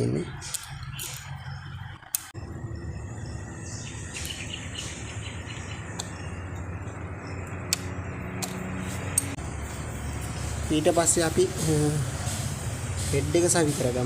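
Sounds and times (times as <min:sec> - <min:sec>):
metal parts clicking: 0:00.4 - 0:01.4.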